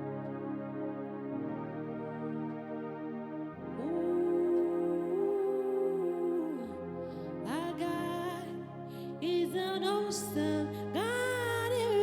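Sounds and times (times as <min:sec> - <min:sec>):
keyboard pad chords: 0:00.0 - 0:12.0.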